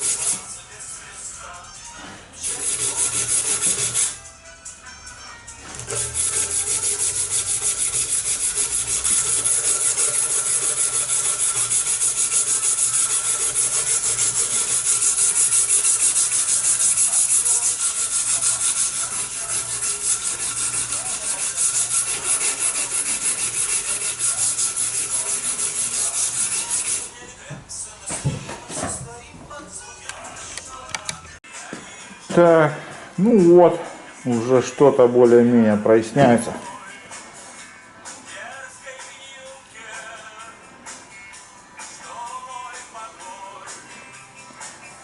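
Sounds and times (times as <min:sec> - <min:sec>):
sanding steel knife blade: 0:00.0 - 0:00.5, 0:02.4 - 0:04.2, 0:05.8 - 0:27.1.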